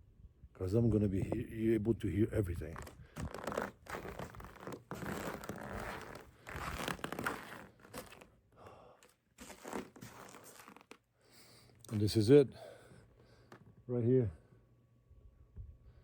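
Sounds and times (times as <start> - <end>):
footsteps crunching through snow: 2.7 - 8.3, 9.4 - 11.0.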